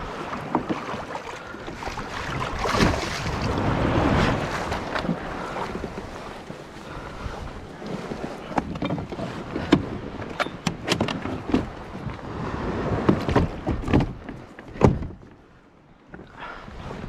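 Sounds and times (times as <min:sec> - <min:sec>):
sharp knocks and splashes: 0:00.0 - 0:06.2, 0:13.0 - 0:15.3
water around a kayak: 0:00.0 - 0:17.0
wind: 0:00.0 - 0:17.0.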